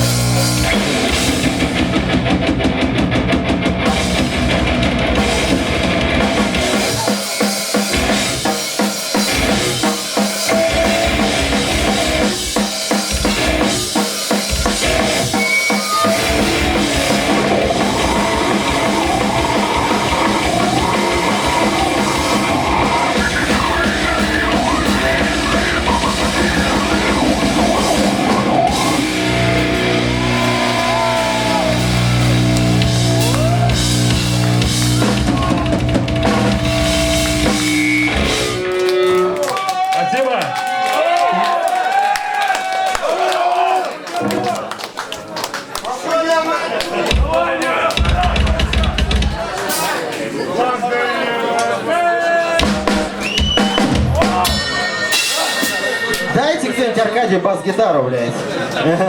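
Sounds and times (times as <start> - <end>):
live rock band playing: 0.0 - 39.6, 52.6 - 57.4.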